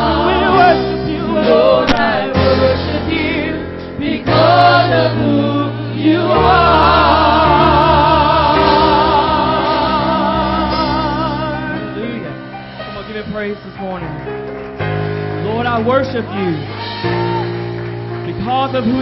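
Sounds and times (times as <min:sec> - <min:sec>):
choir singing in harmony: 0:00.0 - 0:12.9
instrumental backing: 0:00.0 - 0:19.0.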